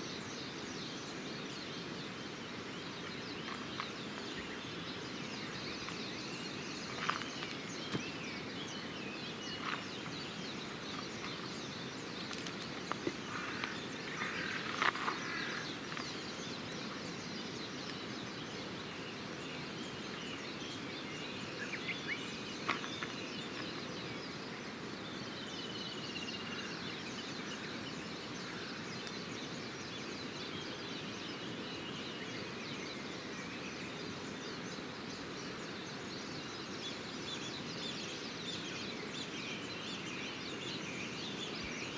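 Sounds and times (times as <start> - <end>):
outdoor background noise: 0.0 - 41.9
birds chirping: 0.9 - 32.5
campfire crackling: 12.0 - 17.1.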